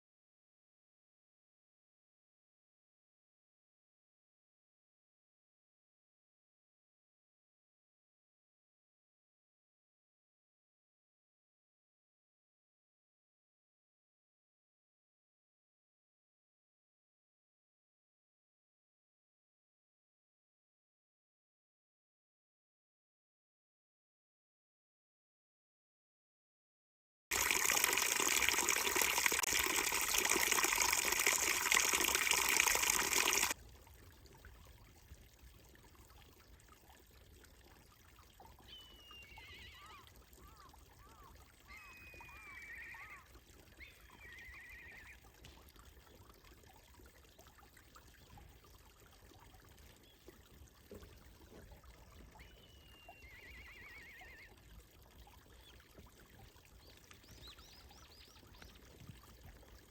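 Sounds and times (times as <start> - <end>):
rushing water noise: 27.3 - 33.6
faint bird chirps: 38.4 - 45.2, 52.1 - 54.6.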